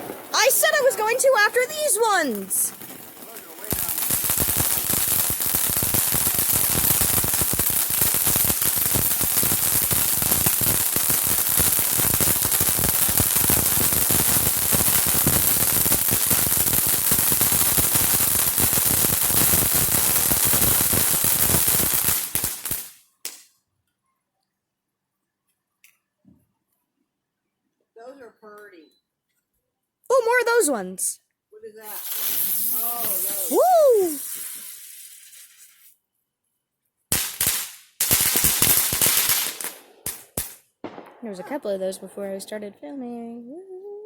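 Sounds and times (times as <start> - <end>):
fireworks crackling pops: 0.0 - 23.6, 31.8 - 36.0, 37.1 - 43.4.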